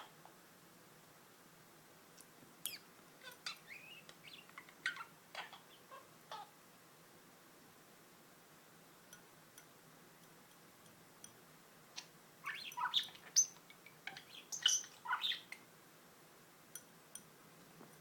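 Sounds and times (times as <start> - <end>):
budgerigar chirping: 2.7 - 6.5, 12.0 - 15.6.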